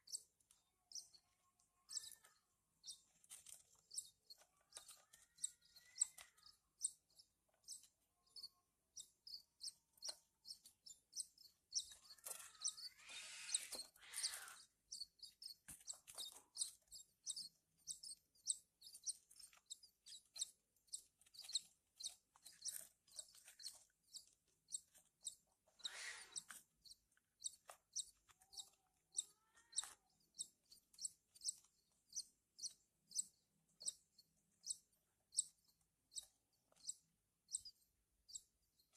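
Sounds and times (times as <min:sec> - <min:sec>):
chicks begging chirps: 0:00.0 - 0:38.5
bird calling bursts: 0:12.9 - 0:14.6.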